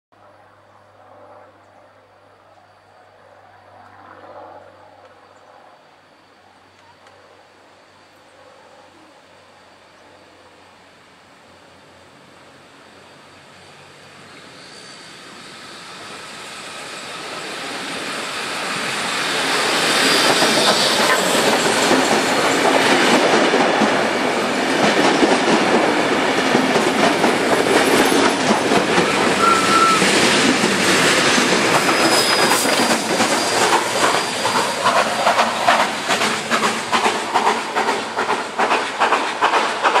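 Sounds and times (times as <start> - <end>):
steam train passing: 4.0 - 40.0
rhythmic clatter of wheels: 19.4 - 40.0.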